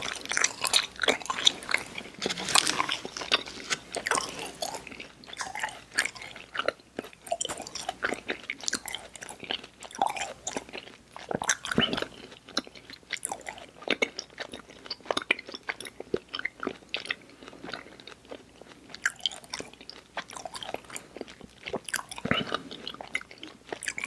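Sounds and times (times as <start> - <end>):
person chewing sticky candy: 0.0 - 24.0.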